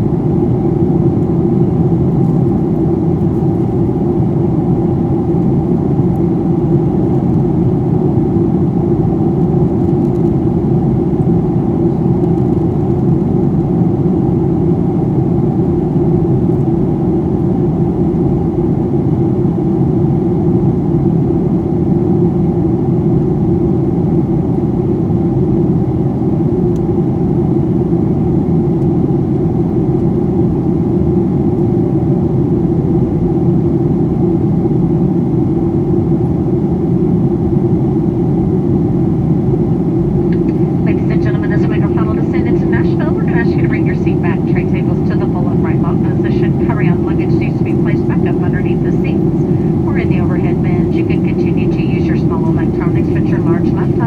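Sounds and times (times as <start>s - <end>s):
jet engine rumble: 0.0s - 54.0s
steady hum: 28.9s - 54.0s
airflow over fuselage: 39.3s - 54.0s.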